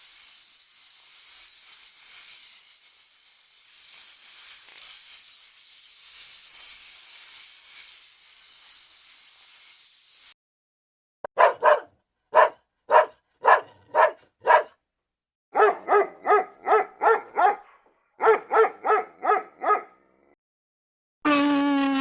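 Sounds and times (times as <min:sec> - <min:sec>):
hiss: 0:00.0 - 0:10.3
dog barking: 0:11.3 - 0:14.8, 0:15.5 - 0:20.0.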